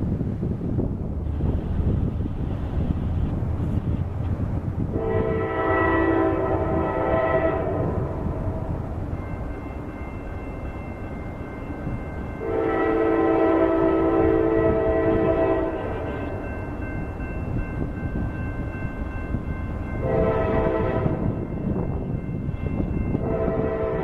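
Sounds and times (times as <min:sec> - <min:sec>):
train rumbling: 0:00.0 - 0:24.0
locomotive air horn: 0:05.0 - 0:08.7, 0:12.4 - 0:16.3, 0:20.0 - 0:21.3, 0:23.2 - 0:24.0.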